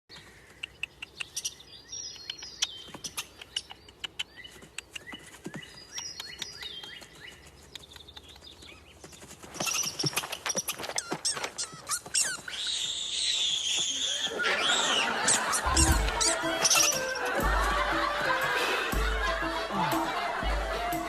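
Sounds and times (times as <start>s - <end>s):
birds chirping: 0.1s - 21.0s
sharp clicks: 0.6s - 5.1s
noisy animal sound: 9.4s - 16.9s.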